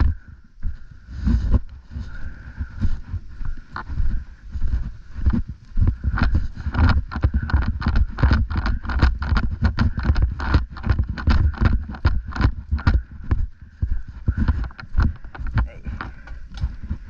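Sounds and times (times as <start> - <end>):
quick footsteps on ground: 0.0 - 17.0
gear clicking and knocking: 5.3 - 17.0.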